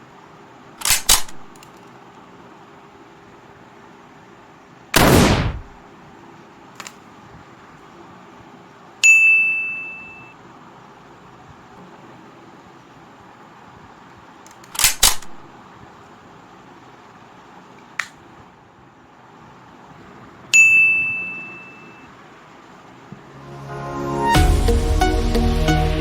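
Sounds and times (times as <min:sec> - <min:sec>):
toy pistol clicks: 0:00.8 - 0:01.7, 0:14.5 - 0:15.4
sharp strike: 0:05.0 - 0:05.8
high ringing ding: 0:09.0 - 0:10.3, 0:20.6 - 0:22.1.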